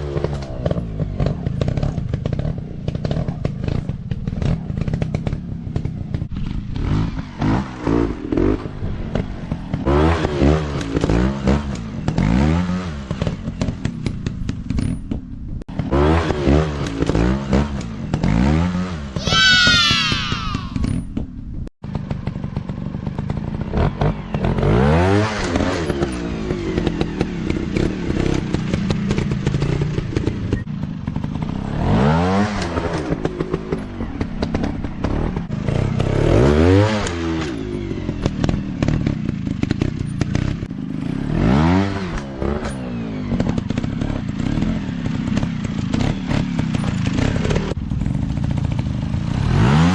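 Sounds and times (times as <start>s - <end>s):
clatter: 0.0s - 19.0s, 20.8s - 49.9s
dirt bike engines revving: 15.8s - 20.9s.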